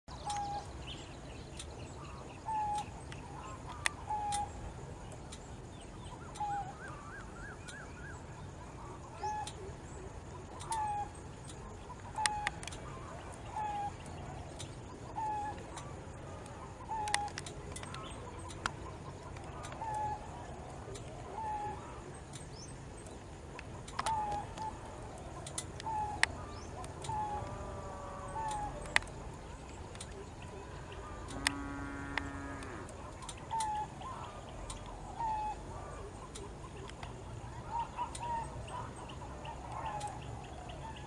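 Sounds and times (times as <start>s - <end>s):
bird wavering trill: 1.6s - 4.8s, 6.0s - 22.8s, 23.7s - 41.0s
sharp clicks: 2.7s - 7.9s, 10.5s - 27.6s, 28.3s - 34.0s, 36.2s - 37.3s.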